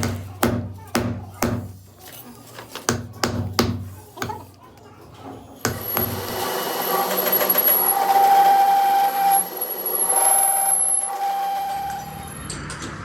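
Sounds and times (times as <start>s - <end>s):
power tool whining on metal: 5.6s - 12.4s.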